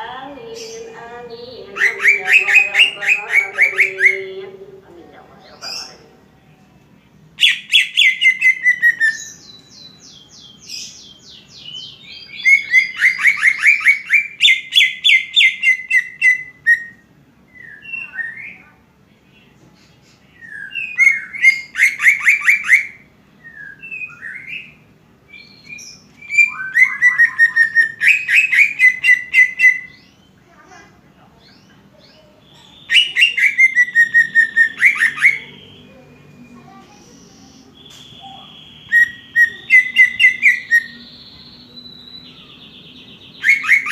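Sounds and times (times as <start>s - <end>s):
bird singing rapid chirps: 0.0s - 4.4s, 7.4s - 18.6s, 20.2s - 30.4s, 31.4s - 43.9s.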